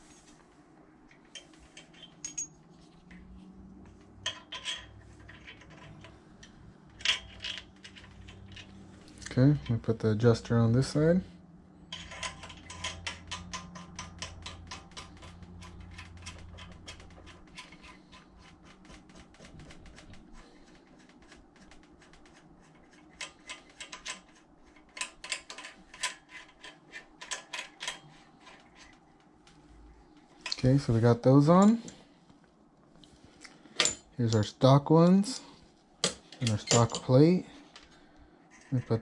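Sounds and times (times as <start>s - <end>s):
metallic clicking of small parts: 11.9s - 20.1s.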